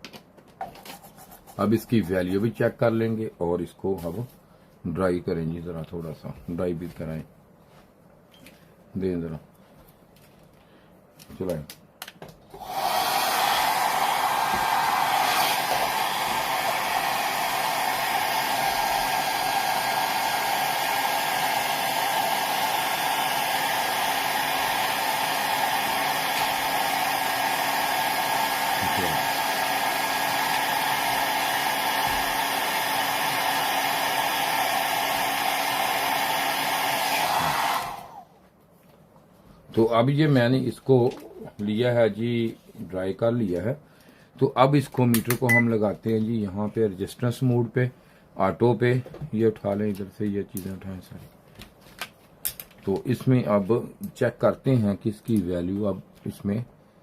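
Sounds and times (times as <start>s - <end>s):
hot air blower rushing: 12.6s - 38.3s.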